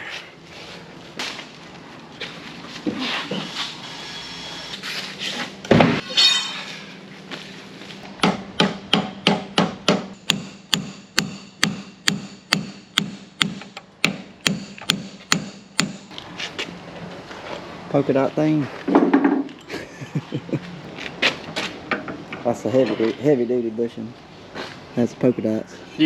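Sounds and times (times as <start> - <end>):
hammer pounding on metal: 8.2 - 16.1.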